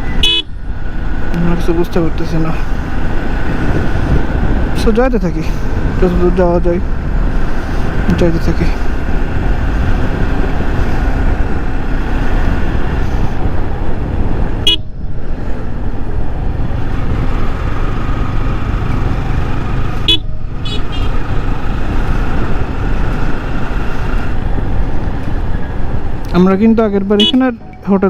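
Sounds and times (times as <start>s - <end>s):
motorcycle engine: 0.0s - 4.9s, 5.6s - 27.3s
wind rush: 0.0s - 27.0s
vehicle horn toots: 0.1s - 0.5s, 14.6s - 14.9s, 20.0s - 21.2s, 27.2s - 27.5s.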